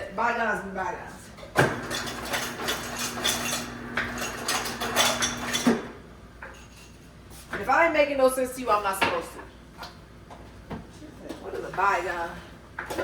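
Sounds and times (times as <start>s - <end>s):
kitchenware clattering: 1.5s - 7.0s.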